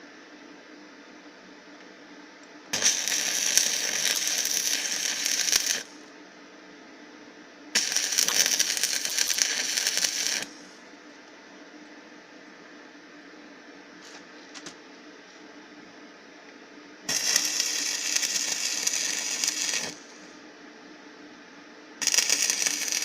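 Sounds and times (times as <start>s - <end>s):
steady low hum: 0.0s - 23.0s
welding arc crackling and sizzling: 2.7s - 6.0s, 7.8s - 10.7s, 17.1s - 20.4s, 22.0s - 23.0s.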